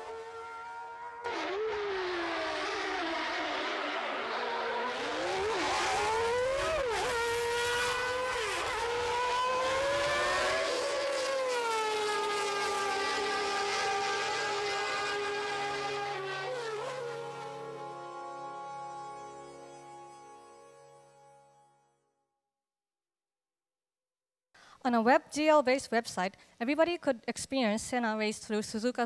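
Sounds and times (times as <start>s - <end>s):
racing car engine revving: 0.0s - 19.2s.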